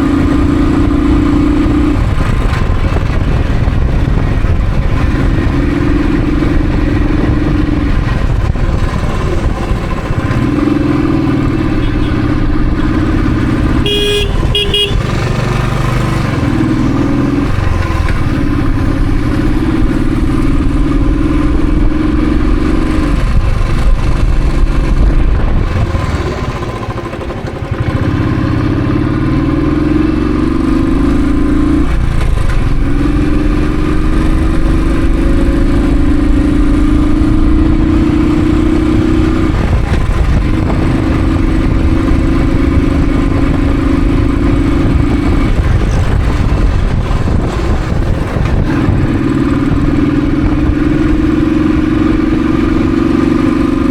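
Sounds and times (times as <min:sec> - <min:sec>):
motorcycle engine accelerating: 0:00.0 - 0:53.9
horn beeping: 0:11.6 - 0:15.3.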